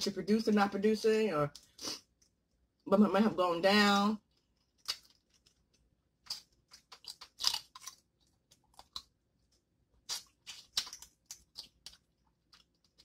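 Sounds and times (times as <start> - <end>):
crisp chewing crunches: 4.2 - 9.2, 10.0 - 13.0.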